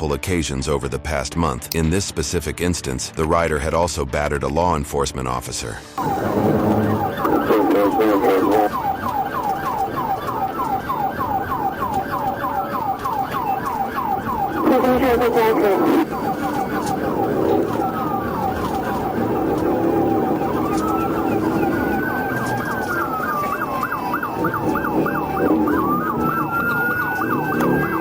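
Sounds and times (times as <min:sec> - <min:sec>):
police siren: 0:06.0 - 0:28.0
vehicle noise: 0:06.0 - 0:28.0.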